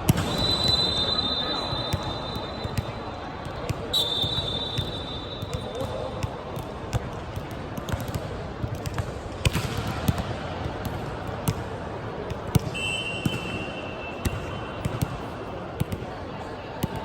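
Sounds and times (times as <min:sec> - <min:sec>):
sneaker squeak: 0:03.9 - 0:05.9.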